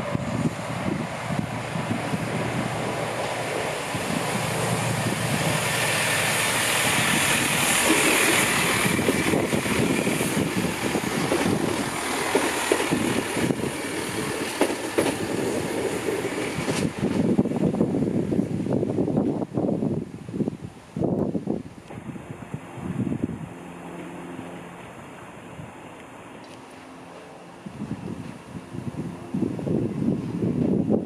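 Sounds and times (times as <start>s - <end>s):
train passing: 0.0s - 20.4s, 21.9s - 31.0s
wind on microphone: 0.0s - 23.6s, 27.6s - 31.0s
wheels clicking over rail joints: 5.6s - 17.4s.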